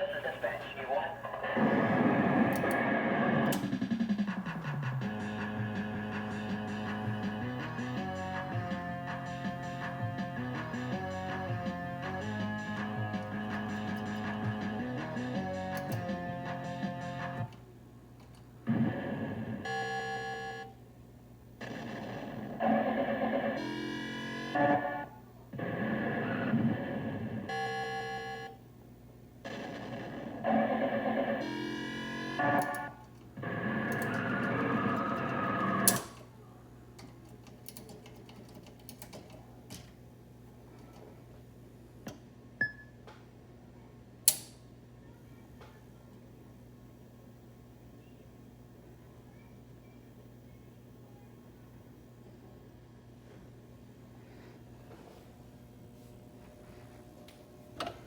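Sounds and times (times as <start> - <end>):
amplifier hum: 0.0 - 36.8
pinball machine synthesized music: 1.6 - 17.5, 21.6 - 25.0, 29.5 - 33.0, 33.7 - 36.2.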